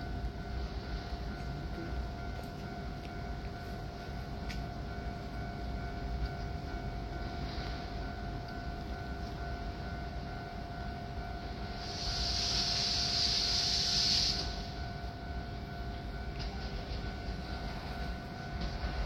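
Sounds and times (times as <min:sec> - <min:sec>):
train rumbling: 0:00.0 - 0:19.0
hiss: 0:11.8 - 0:14.8.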